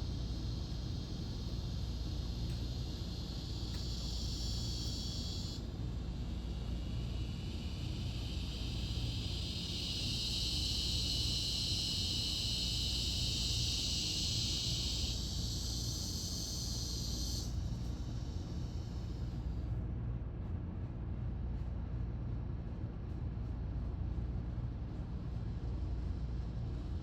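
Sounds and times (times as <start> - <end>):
cicadas buzzing: 0.0 - 19.6
low steady rumble: 0.0 - 27.0.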